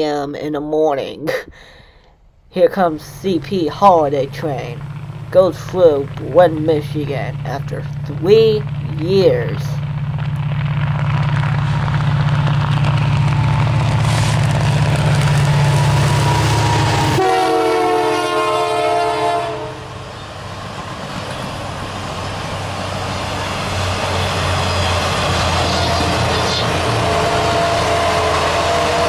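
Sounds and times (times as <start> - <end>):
diesel locomotive engine drone: 0.0 - 29.0
train cars rumbling past: 0.0 - 29.0
train horn chord: 15.7 - 19.9, 24.2 - 29.0.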